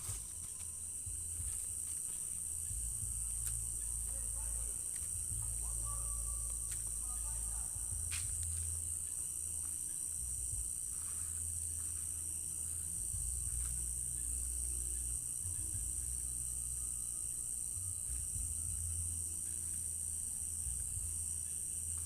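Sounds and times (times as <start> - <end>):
crickets chirring: 0.0 - 22.0
low rumble: 2.5 - 9.6, 10.2 - 19.4.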